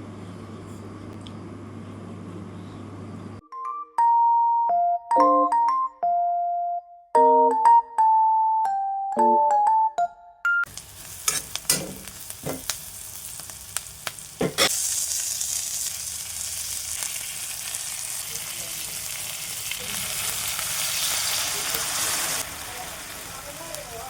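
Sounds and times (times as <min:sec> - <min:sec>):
food sizzling in hot oil: 0:10.7 - 0:24.0.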